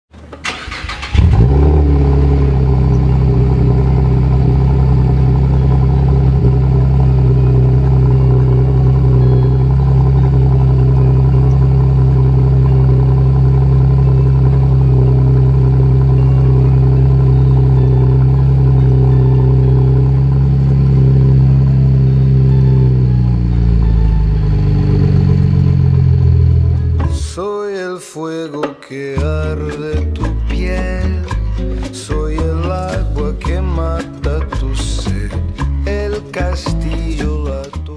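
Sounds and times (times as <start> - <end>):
car engine idling: 0.4 - 27.3.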